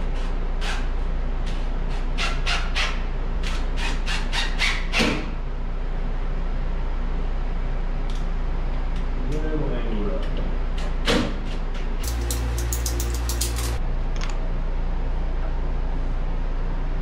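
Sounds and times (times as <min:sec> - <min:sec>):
tools clicking and scraping: 0:12.0 - 0:13.8
steady low hum: 0:12.0 - 0:17.0.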